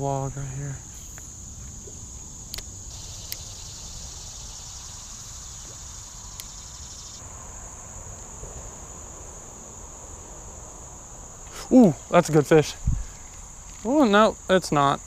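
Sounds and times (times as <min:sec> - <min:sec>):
high-pitched insect chorus: 0:00.0 - 0:15.0
lower insect song: 0:00.0 - 0:15.0
sharp clicks: 0:02.4 - 0:03.5, 0:05.6 - 0:06.7.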